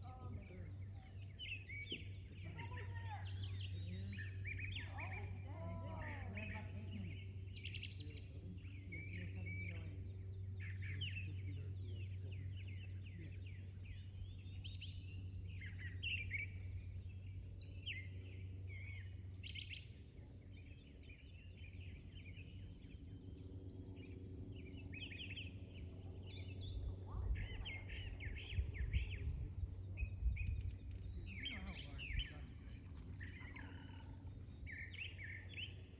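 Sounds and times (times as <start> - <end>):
small birds chirping: 0.0 - 35.9
steady low hum: 0.0 - 35.9
low rumbling: 21.3 - 35.9.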